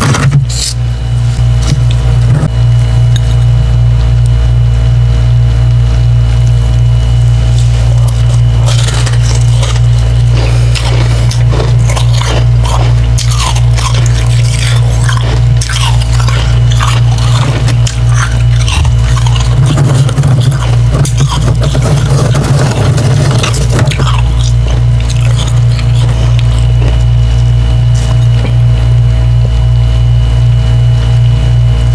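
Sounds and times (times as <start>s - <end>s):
steady low hum: 0.0s - 31.9s
chewing ice wet crunches: 7.4s - 28.8s.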